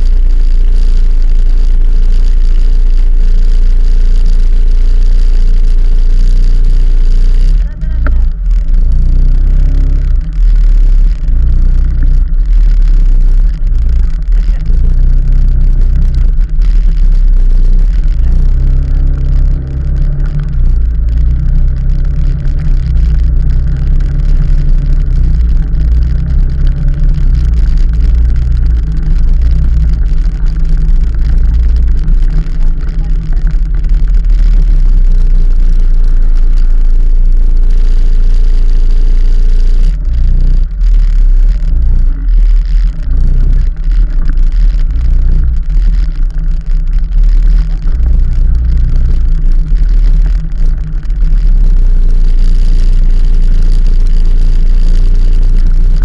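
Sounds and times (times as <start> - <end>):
vehicle running noise: 0.0 - 56.0.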